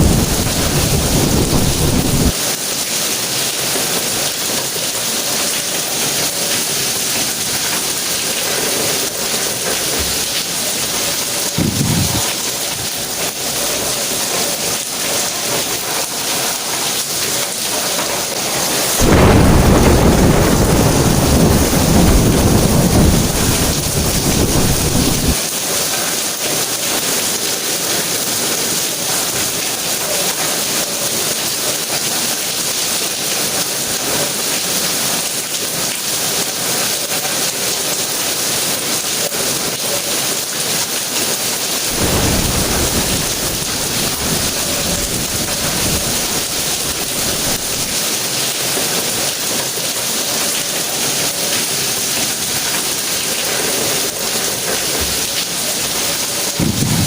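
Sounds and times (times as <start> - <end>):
loud peal of thunder: 0.0 - 2.4, 11.5 - 12.8, 19.0 - 25.4, 41.9 - 48.0, 56.6 - 57.0
low rumble of thunder: 0.0 - 2.4, 11.5 - 12.5, 19.0 - 25.4, 41.9 - 47.9, 56.6 - 57.0
heavy rain hissing on ground: 0.0 - 57.0.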